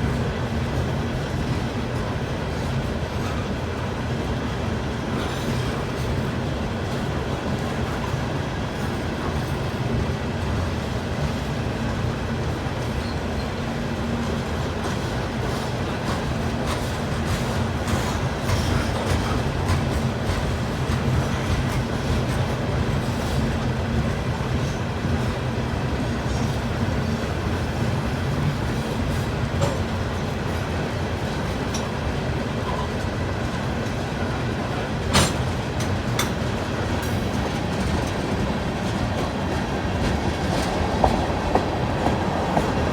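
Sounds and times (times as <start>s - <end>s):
freight train rumbling: 0.0s - 42.9s
wheels clicking over rail joints: 14.2s - 42.9s.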